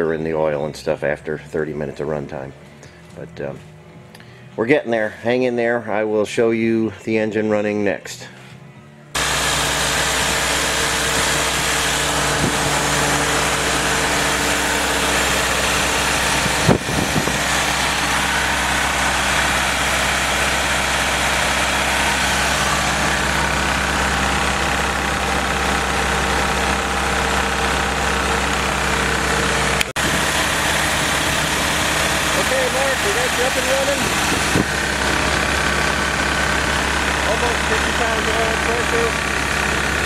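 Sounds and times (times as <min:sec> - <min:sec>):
engine running steadily: 0:09.1 - 0:40.0.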